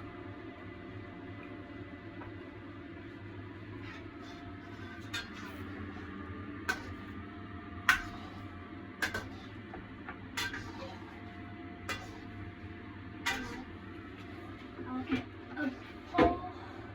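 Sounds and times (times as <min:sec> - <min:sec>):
steady low hum: 0:00.0 - 0:16.9
utensil clacking against a wok: 0:03.8 - 0:12.6, 0:13.2 - 0:16.3.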